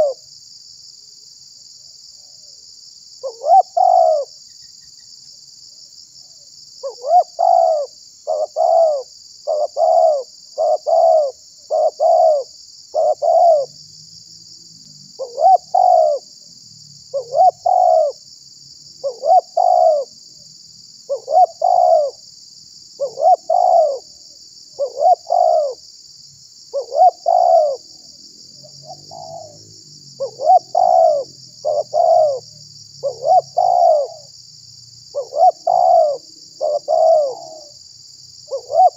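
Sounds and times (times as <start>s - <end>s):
dove cooing: 0.0s - 0.2s, 3.2s - 4.3s, 6.8s - 13.8s, 15.2s - 16.3s, 17.1s - 18.2s, 19.0s - 20.1s, 21.1s - 22.2s, 23.0s - 24.1s, 24.8s - 25.8s, 26.7s - 28.0s, 28.8s - 29.6s, 30.2s - 34.3s, 35.1s - 37.8s, 38.5s - 38.9s.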